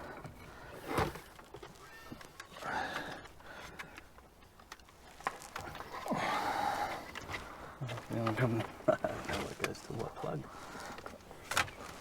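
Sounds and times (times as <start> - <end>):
clicks and rustling of plastic trim: 1.0 - 6.0, 10.9 - 12.0.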